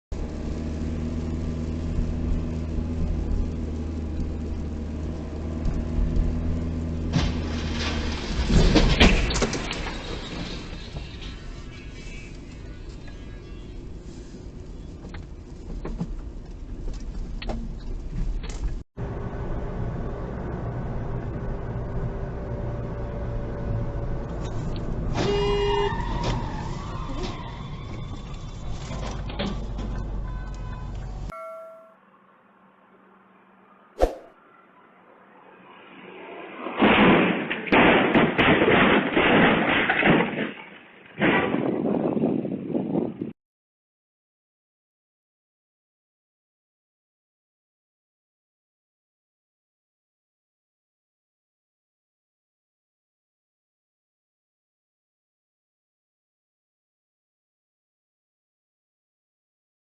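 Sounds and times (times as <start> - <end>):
car road and engine noise: 0.1 - 31.4, 32.0 - 38.2
car horn blast: 25.2 - 25.9, 30.2 - 32.0.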